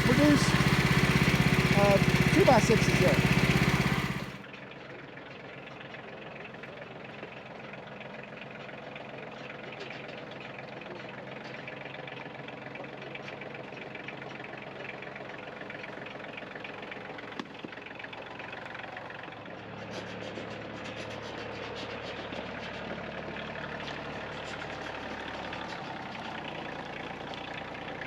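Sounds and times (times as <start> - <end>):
sawmill engine running: 0.0 - 4.4, 15.6 - 28.0.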